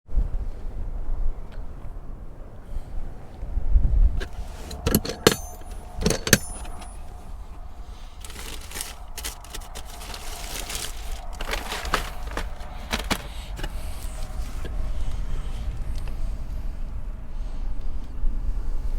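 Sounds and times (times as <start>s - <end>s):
wind buffeting microphone: 0.1s - 18.9s
sharp clicks and knocks: 4.2s - 7.1s
rustling handling noise: 4.2s - 14.8s.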